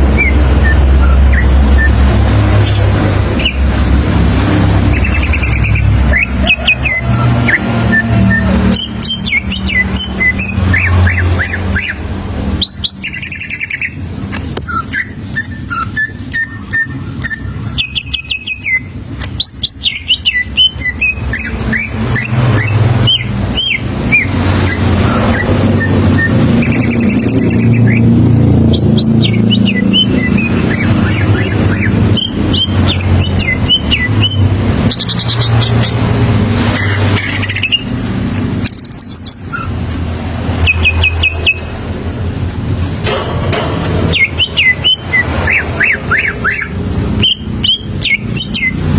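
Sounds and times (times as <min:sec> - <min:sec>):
bird singing chirps and whistles: 0:00.0 - 0:03.6, 0:04.8 - 0:36.0, 0:36.8 - 0:38.0, 0:38.6 - 0:39.8, 0:40.6 - 0:41.7, 0:44.1 - 0:48.9.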